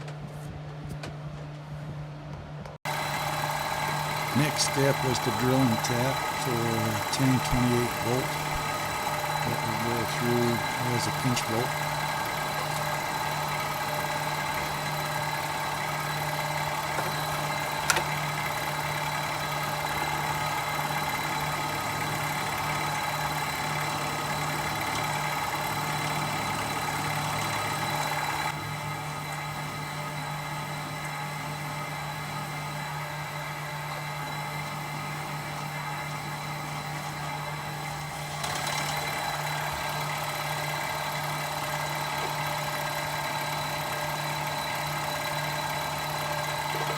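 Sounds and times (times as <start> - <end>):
high spindle whine: 2.9 - 46.9
machine tool motor humming: 2.9 - 46.9.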